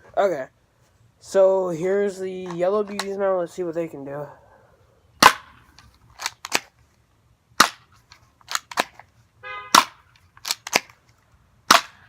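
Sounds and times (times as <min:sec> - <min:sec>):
airsoft pistol shots: 0:05.2 - 0:05.5, 0:07.6 - 0:07.8, 0:09.7 - 0:10.0, 0:11.7 - 0:12.0.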